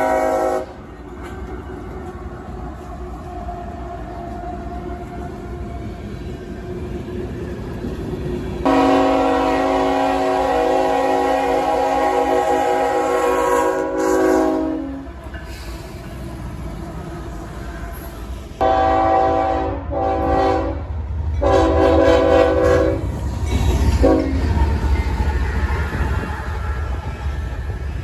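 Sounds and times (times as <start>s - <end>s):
locomotive air horn blasts: 0.0s - 0.8s, 8.6s - 15.1s, 18.6s - 23.1s, 24.0s - 24.4s
passing train rumble: 0.0s - 28.0s.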